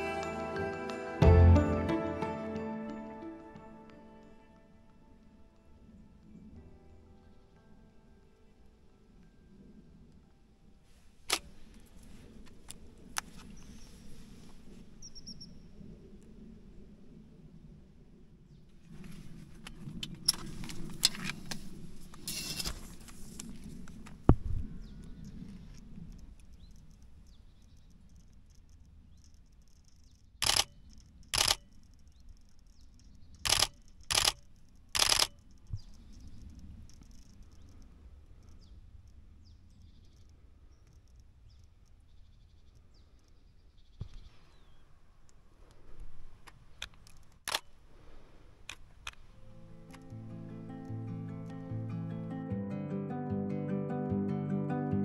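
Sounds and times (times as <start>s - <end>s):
steady low rumble: 11.1s - 42.3s
sharp clicks: 11.3s - 11.7s, 27.7s - 39.2s, 46.4s - 47.8s, 48.6s - 50.2s
camera shutter bursts: 30.4s - 30.8s, 31.4s - 31.7s, 33.4s - 34.4s, 35.0s - 35.4s, 47.5s - 47.7s.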